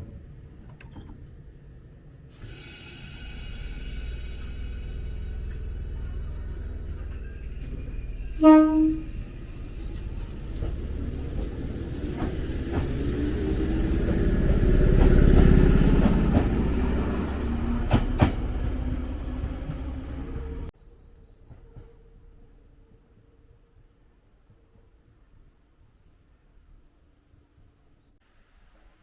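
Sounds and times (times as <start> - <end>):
electric train rumble: 0.0 - 23.2
short horn tone: 8.3 - 9.2.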